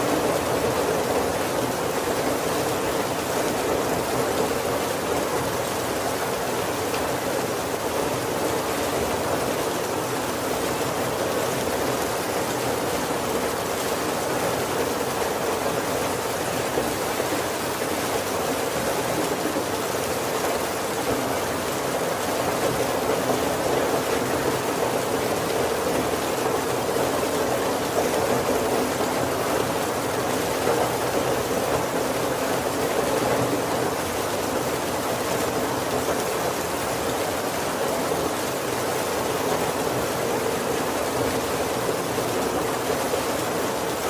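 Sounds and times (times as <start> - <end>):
heavy rain on a wooden roof: 0.0 - 44.0.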